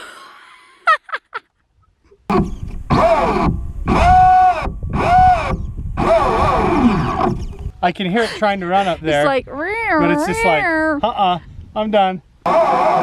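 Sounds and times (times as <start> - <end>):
low rumbling noise: 2.3 - 13.0
person groaning and wailing: 8.2 - 11.0.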